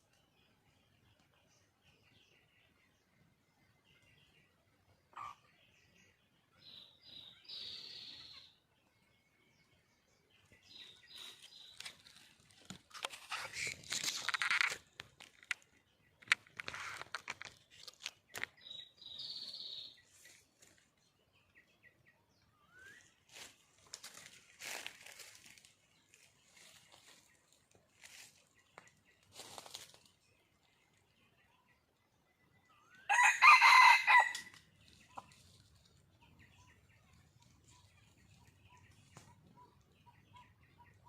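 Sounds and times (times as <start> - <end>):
scratchy noise: 12.8 - 15.0, 16.4 - 17.9.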